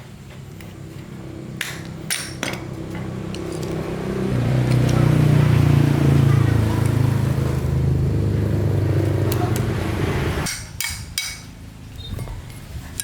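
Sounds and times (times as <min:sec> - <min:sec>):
small petrol engine running: 0:01.1 - 0:10.5.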